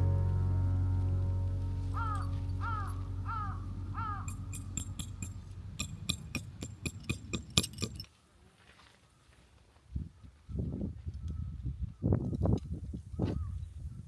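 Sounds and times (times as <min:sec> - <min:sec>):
crow cawing: 0:01.9 - 0:05.2
sharp clicks and metallic clinks: 0:04.2 - 0:08.1.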